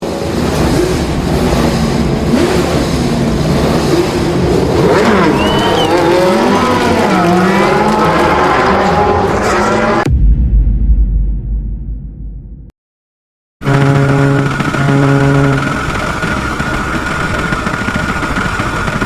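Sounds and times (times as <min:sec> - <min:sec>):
car engine revving hard: 0:00.0 - 0:10.1, 0:13.6 - 0:19.0
high squeal: 0:05.1 - 0:06.8.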